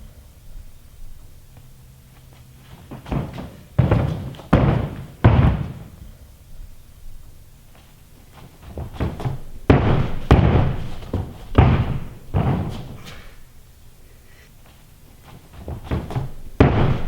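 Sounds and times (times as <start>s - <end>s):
running footsteps: 2.1s - 6.0s, 7.7s - 13.4s
thuds on gym floor: 2.7s - 6.0s, 8.6s - 13.4s, 15.5s - 17.0s.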